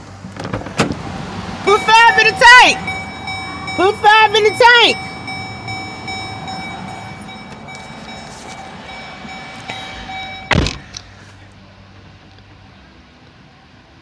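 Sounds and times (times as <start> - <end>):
steady background noise: 0.0 - 14.0
car door shutting: 0.3 - 1.1, 7.5 - 11.1
faint steady tones: 1.6 - 11.5.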